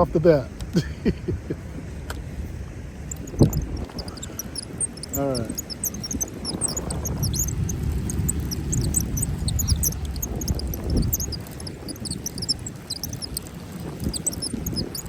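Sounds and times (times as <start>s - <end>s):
wind: 0.0s - 15.0s
quick high chirps: 3.0s - 15.0s.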